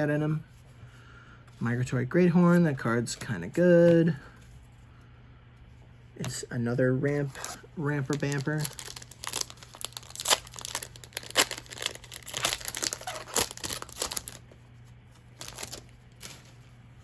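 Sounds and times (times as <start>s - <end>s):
foil wrapper crinkling and tearing: 7.4s - 14.5s, 15.2s - 16.6s.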